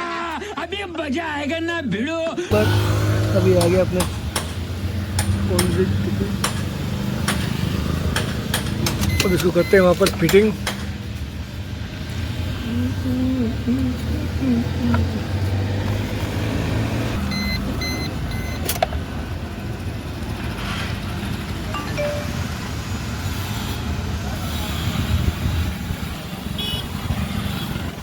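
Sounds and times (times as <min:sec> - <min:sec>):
vehicle low rumble: 0:02.5 - 0:23.1
short high beeps: 0:21.8 - 0:22.6.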